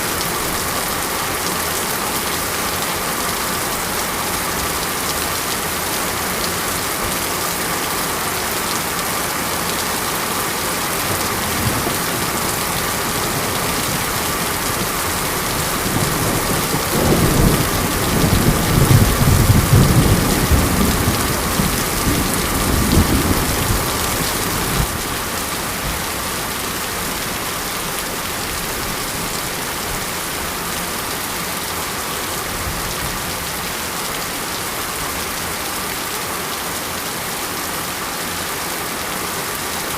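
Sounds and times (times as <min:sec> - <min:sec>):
heavy rain: 0:00.0 - 0:39.9
thunder rumbling: 0:11.0 - 0:25.0.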